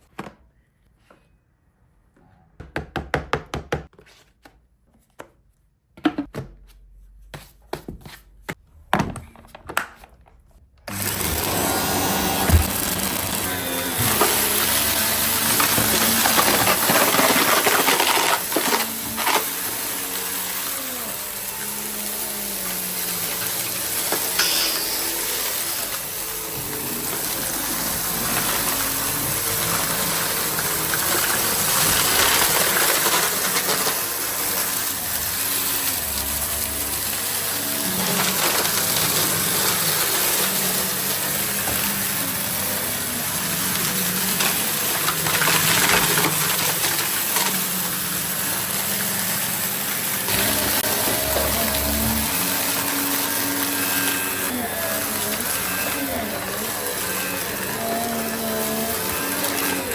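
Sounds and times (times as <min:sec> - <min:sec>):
rattles and clicks in vacuum: 0:10.8 - 0:20.8, 0:22.7 - 0:42.5, 0:43.5 - 0:48.6
vacuum cleaner motor whining: 0:10.8 - 0:59.9.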